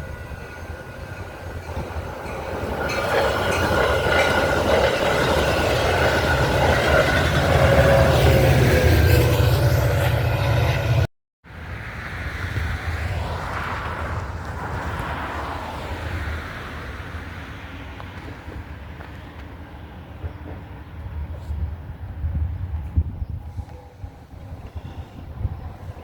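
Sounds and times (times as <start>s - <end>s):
train rumbling past: 0.0s - 26.0s
wind buffeting microphone: 12.1s - 26.0s.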